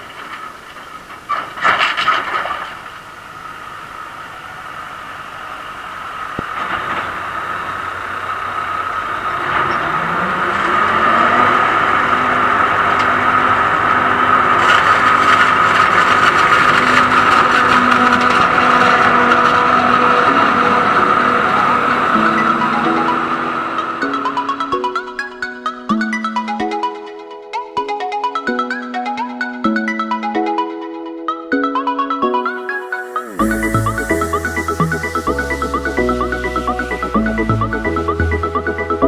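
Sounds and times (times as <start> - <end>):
diesel engine of farm machine: 3.2 - 22.8
high whine: 32.2 - 39.0.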